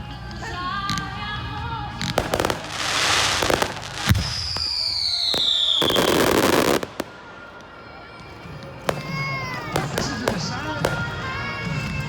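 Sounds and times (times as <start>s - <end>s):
fireworks crackling pops: 0.2s - 12.0s
hissing rush: 2.5s - 5.8s
falling whistle: 4.2s - 6.8s.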